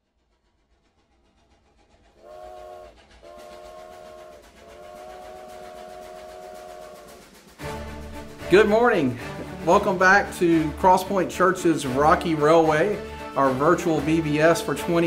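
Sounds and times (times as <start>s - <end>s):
train running rhythmically: 0.0s - 15.0s
train whistle blasts: 2.2s - 8.2s.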